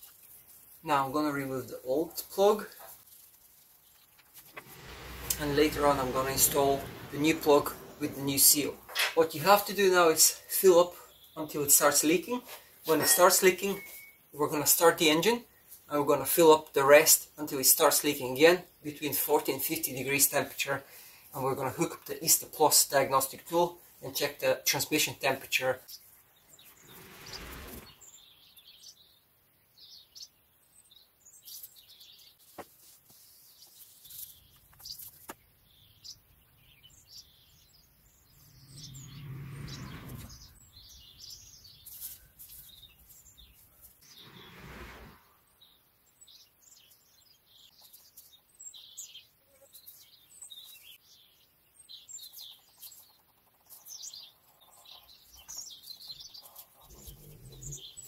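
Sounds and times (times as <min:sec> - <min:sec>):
faint birds chirping: 0:00.0 - 0:58.0
swells of noise: 0:04.4 - 0:09.0, 0:26.4 - 0:28.2, 0:38.2 - 0:40.9, 0:44.0 - 0:45.6.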